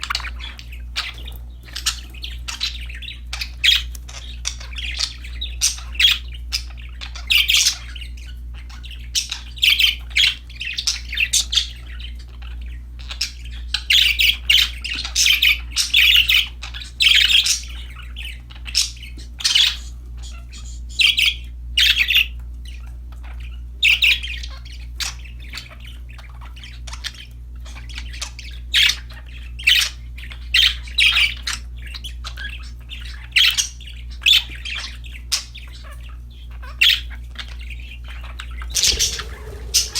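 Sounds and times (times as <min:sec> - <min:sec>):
budgerigars chirping: 0:00.0 - 0:22.4, 0:23.2 - 0:39.9
steady low hum: 0:38.6 - 0:39.9.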